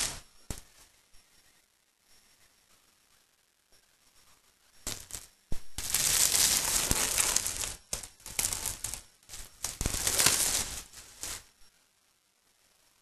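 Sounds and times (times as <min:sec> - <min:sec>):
plastic film peeling and crinkling: 0:00.0 - 0:00.7, 0:04.9 - 0:11.5.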